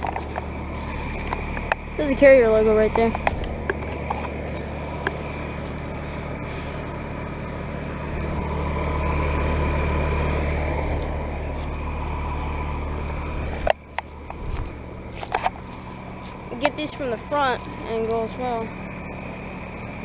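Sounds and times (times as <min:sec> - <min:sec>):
compressor humming: 0:00.0 - 0:20.0
fan whooshing: 0:00.0 - 0:20.0.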